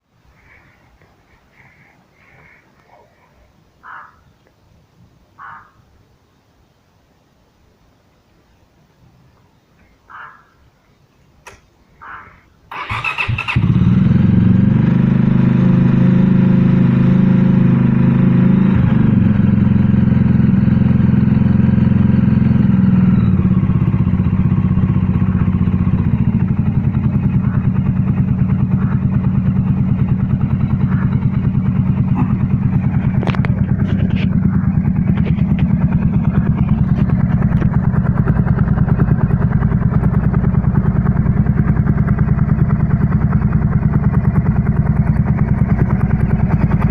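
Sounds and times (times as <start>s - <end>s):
motorcycle engine idling: 12.0s - 46.9s.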